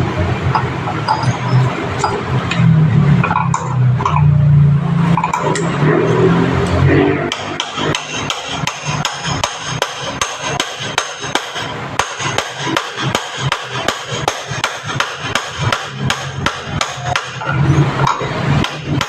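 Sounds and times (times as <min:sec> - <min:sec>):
hammer strikes ringing: 0:05.1 - 0:19.0.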